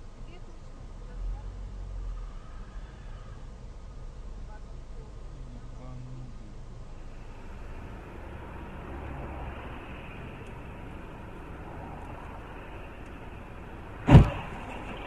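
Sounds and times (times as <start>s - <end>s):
road and engine noise inside car: 0.0s - 15.0s
loud collision bang: 14.0s - 15.0s.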